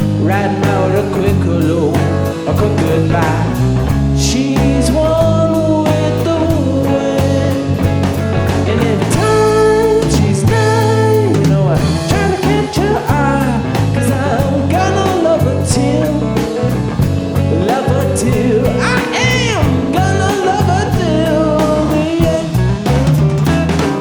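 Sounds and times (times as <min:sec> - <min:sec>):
lead guitar melody bending: 0:00.0 - 0:24.0
live rock band playing: 0:00.0 - 0:24.0.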